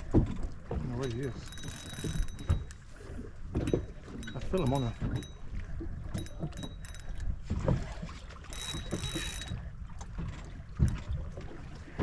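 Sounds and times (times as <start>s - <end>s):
knocks and clicks: 0.1s - 2.8s.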